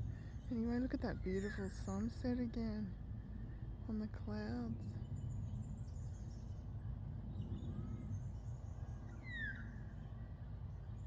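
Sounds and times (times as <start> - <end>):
low background rumble: 0.0 - 11.0
faint bird calls: 9.1 - 10.0.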